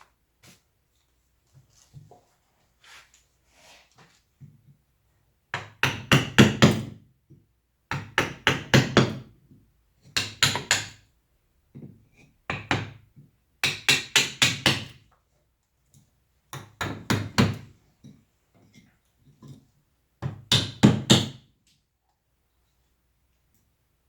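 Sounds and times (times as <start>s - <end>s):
mallet knocking chisel into wood: 5.5s - 7.0s, 7.9s - 9.2s, 10.2s - 11.0s, 12.5s - 13.0s, 13.6s - 15.0s, 16.5s - 17.7s, 20.2s - 21.4s.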